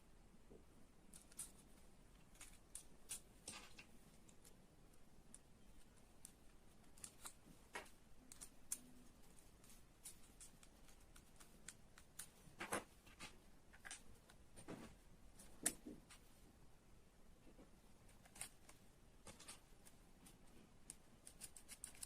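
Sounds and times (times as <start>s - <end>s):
small parts clicking and tapping: 1.1s - 14.4s, 20.8s - 22.0s.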